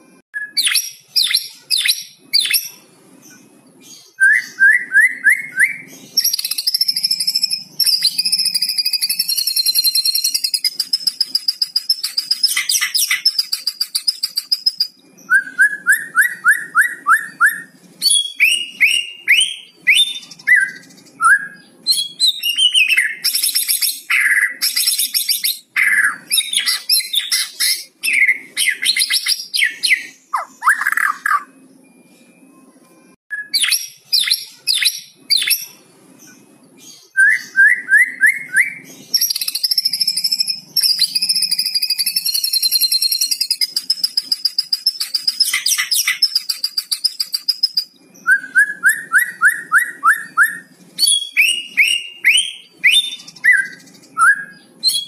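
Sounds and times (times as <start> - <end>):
songbird singing whistled notes: 0.4 - 55.0
buzzy rattling bird trill: 6.2 - 14.9, 39.2 - 47.9.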